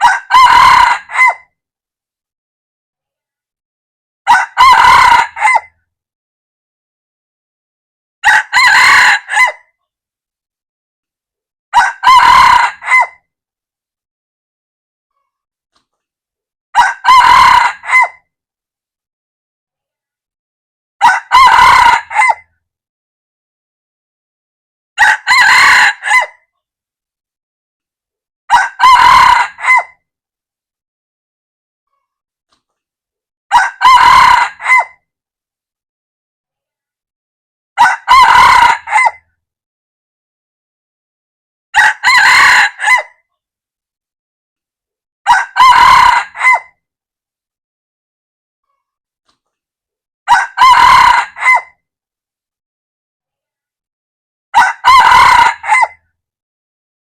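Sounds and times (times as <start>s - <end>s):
rooster crowing: 0.0s - 1.4s, 4.3s - 5.7s, 8.2s - 9.6s, 11.8s - 13.2s, 16.8s - 18.2s, 21.0s - 22.4s, 25.0s - 26.3s, 28.5s - 29.9s, 33.5s - 35.0s, 37.8s - 39.2s, 41.8s - 43.1s, 45.3s - 46.7s, 50.3s - 51.7s, 54.6s - 56.0s.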